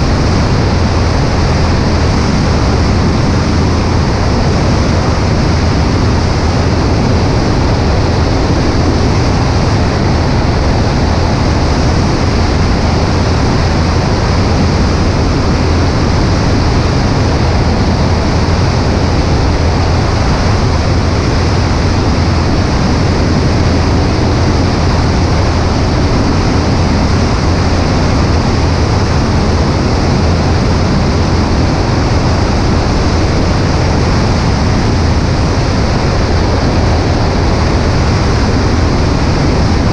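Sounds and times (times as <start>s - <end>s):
aircraft engine and propeller drone: 0.0s - 39.9s
wind rushing over microphone: 0.0s - 39.9s.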